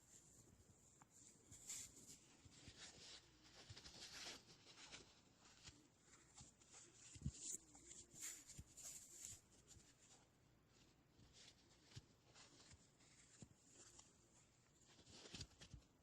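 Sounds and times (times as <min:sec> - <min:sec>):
soft scratchy brushing: 0:00.0 - 0:16.0.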